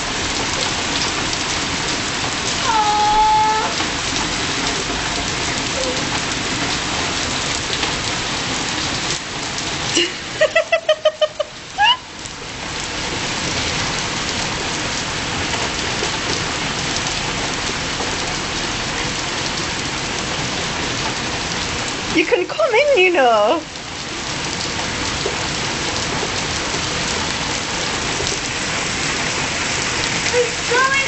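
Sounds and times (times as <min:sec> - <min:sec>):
heavy rain on stone: 0:00.0 - 0:31.0
short high-pitched voice sounds: 0:02.6 - 0:03.8.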